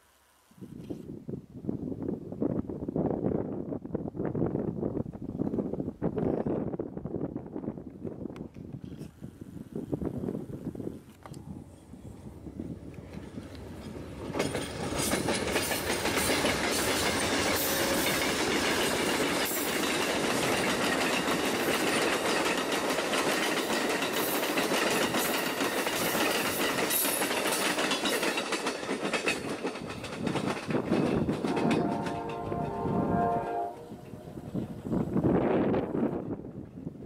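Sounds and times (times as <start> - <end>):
passenger train rolling past: 9.2 - 37.0
wheels clattering over rail joints: 11.1 - 34.2.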